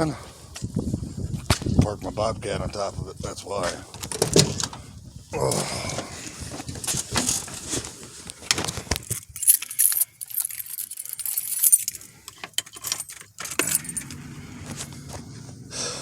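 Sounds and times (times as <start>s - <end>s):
clicks and knocks of handled keys: 8.9s - 14.2s
keys jangling: 9.0s - 14.3s.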